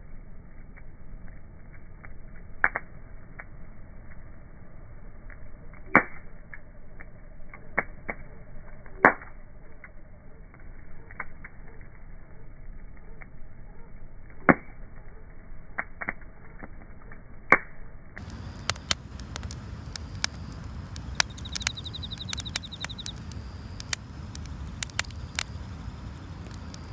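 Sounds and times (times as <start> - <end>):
wood fire crackling and popping: 0.0 - 26.9
low rumble: 16.3 - 26.9.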